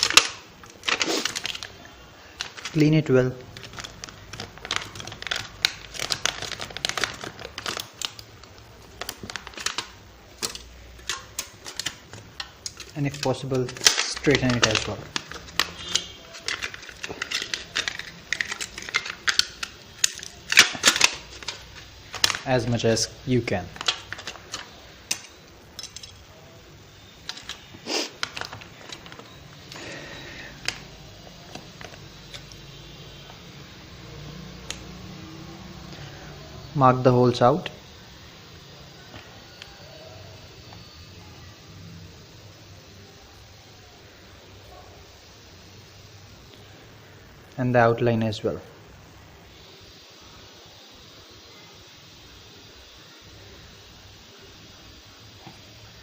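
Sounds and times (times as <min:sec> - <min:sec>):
aluminium sheet crinkling: 0:00.0 - 0:26.4, 0:27.0 - 0:33.4.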